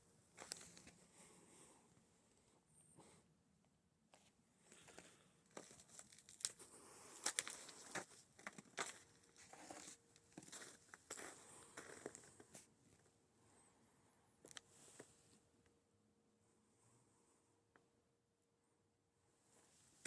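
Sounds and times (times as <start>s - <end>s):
footsteps crunching through snow: 7.2s - 12.4s.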